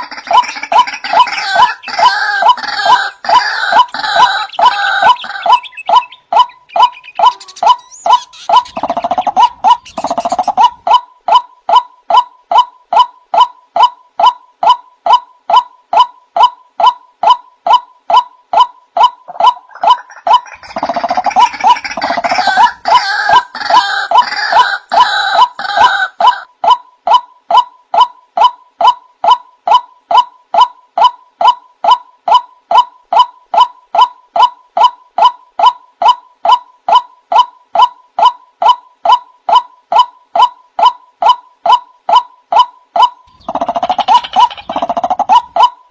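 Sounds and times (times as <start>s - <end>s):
waterhen calling: 0.0s - 11.0s, 43.3s - 45.7s
harsh bird calling: 0.0s - 11.4s, 16.8s - 26.5s, 37.3s - 45.9s.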